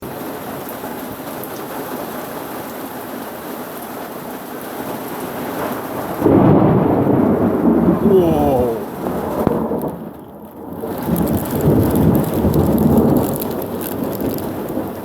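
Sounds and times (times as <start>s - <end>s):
steady rain: 0.0s - 15.0s
loud thunder clap: 6.1s - 10.0s.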